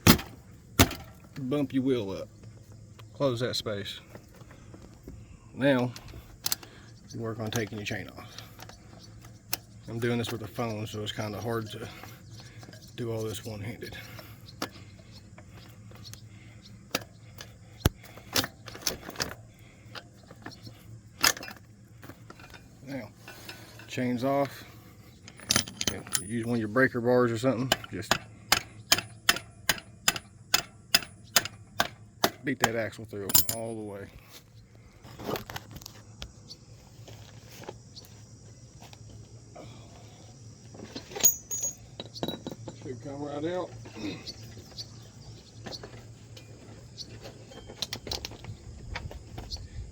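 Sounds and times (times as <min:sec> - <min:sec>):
metal chain clinking and rattling: 0:25.3 - 0:26.8, 0:33.2 - 0:33.9, 0:40.9 - 0:42.8.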